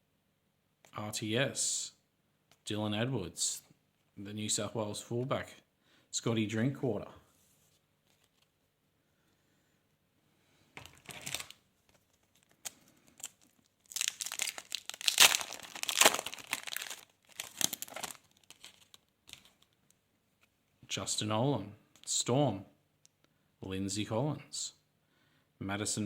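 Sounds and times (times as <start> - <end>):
wrapper tearing and crinkling: 10.8 - 11.6, 12.2 - 19.7.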